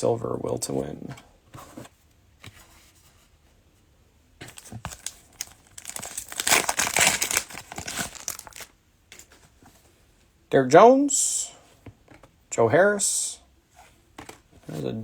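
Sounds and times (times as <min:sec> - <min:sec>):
cellophane wrapper crinkling and tearing: 0:04.4 - 0:08.7.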